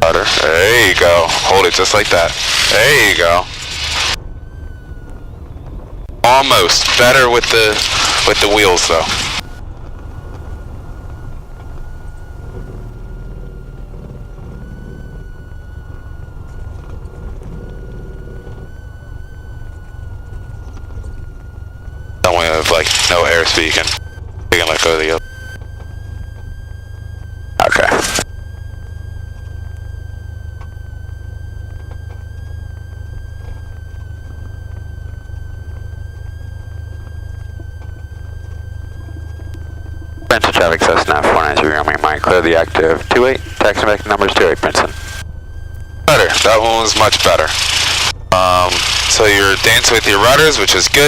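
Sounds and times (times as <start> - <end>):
aircraft engine idling: 0.0 - 51.0
thin steady whine: 0.0 - 51.0
faint ticks: 9.4 - 22.2, 28.2 - 40.3.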